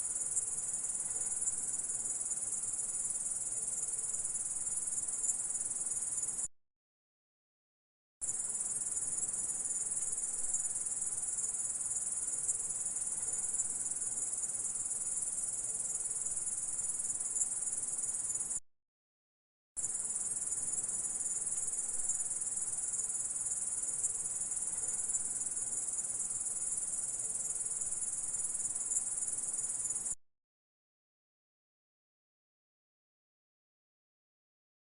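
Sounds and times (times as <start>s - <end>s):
insect high-pitched trill: 8.2s - 18.6s, 19.8s - 30.2s.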